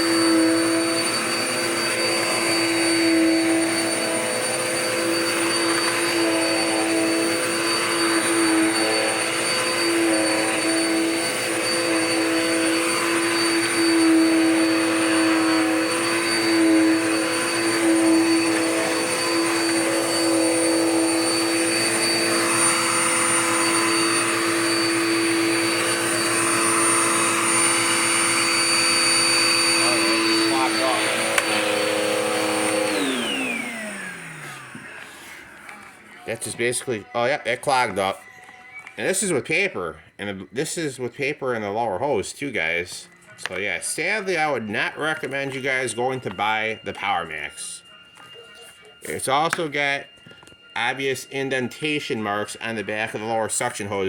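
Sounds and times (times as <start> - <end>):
vacuum sucking up paper: 0.0 - 36.8
vacuum cleaner running: 0.0 - 39.8, 40.6 - 54.0.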